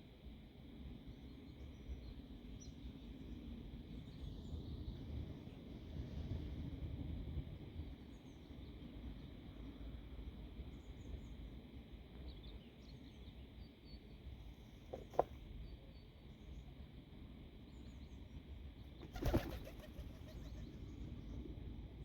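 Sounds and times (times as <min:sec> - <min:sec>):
wind rumbling on microphone: 0:03.0 - 0:10.8
fluttering rustle: 0:14.9 - 0:15.4, 0:19.0 - 0:20.7.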